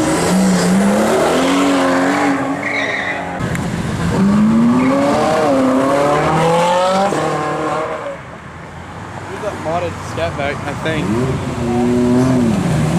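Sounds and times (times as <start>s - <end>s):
car engine revving accelerating: 0.0s - 2.6s, 4.0s - 8.2s, 10.9s - 12.9s.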